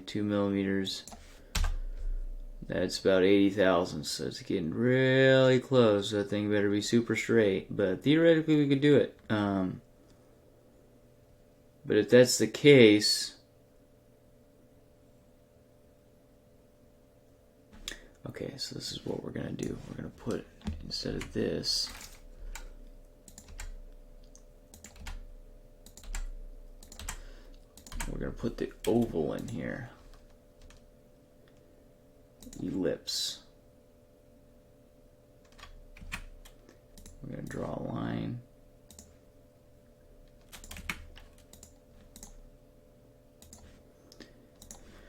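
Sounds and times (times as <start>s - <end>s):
faint steady hum: 0.0s - 45.0s
computer keyboard keystrokes: 23.3s - 25.2s, 25.8s - 28.2s, 40.3s - 42.4s, 43.4s - 43.7s, 44.6s - 44.8s.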